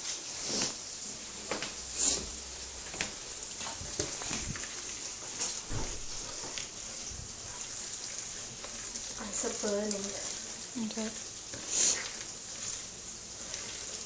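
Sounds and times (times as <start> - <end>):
food sizzling in a pan: 0.0 - 14.0
spoon knocking and scraping pan: 2.9 - 4.7.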